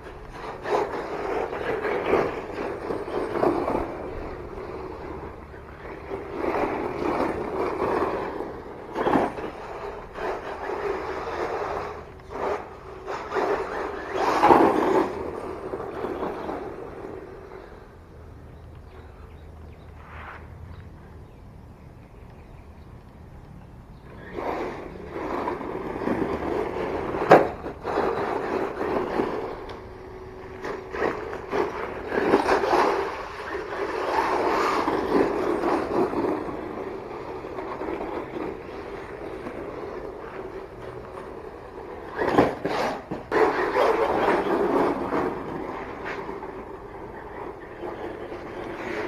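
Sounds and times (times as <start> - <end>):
rc truck motor and tyres: 0.0 - 49.0.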